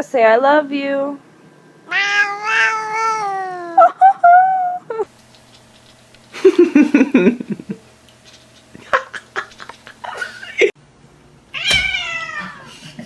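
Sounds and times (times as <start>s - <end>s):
person laughing: 3.6s - 5.1s, 6.3s - 7.9s, 8.7s - 10.8s, 12.3s - 13.0s.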